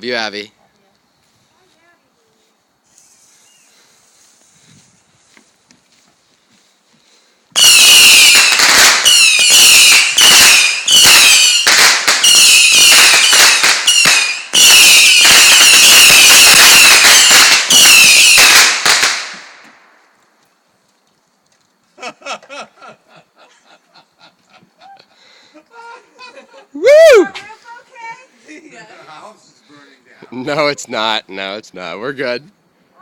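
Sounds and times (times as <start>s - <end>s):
firework hissing crackle: 2.8s - 5.1s, 7.6s - 20.3s
firework whistle: 2.9s - 4.2s, 7.6s - 19.5s.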